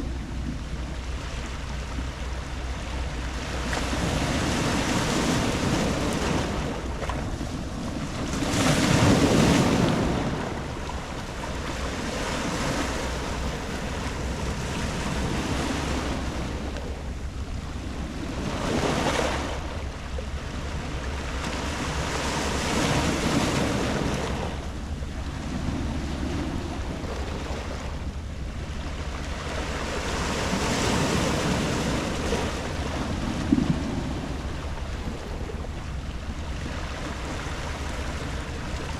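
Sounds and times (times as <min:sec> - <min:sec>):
waves breaking on pebble beach: 0:03.4 - 0:17.2, 0:29.4 - 0:35.4.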